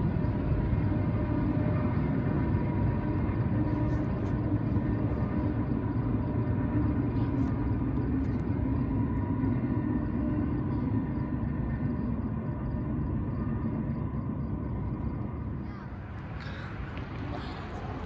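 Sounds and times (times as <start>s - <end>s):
freight train rumble: 0.0s - 18.0s.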